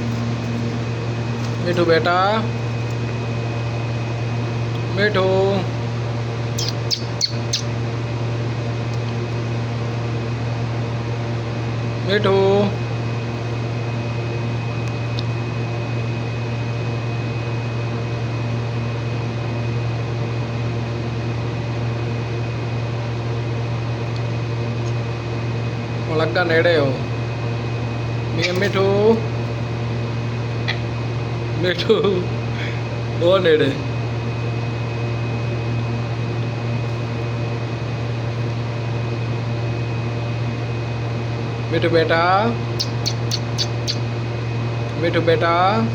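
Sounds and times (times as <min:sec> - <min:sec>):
appliance motor humming: 0:00.0 - 0:17.9
fan motor hum: 0:00.0 - 0:45.9.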